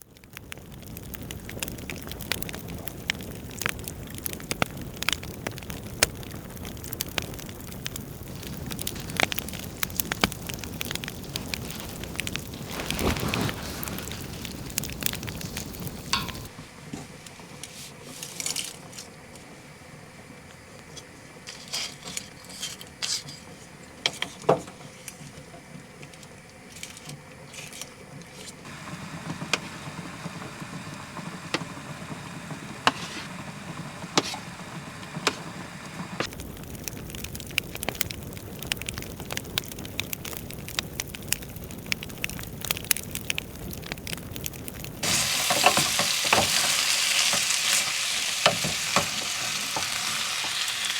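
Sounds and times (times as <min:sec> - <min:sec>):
food sizzling in a pan: 0:00.0 - 0:16.6, 0:28.6 - 0:50.9
utensil clicking against pan: 0:14.8 - 0:16.5.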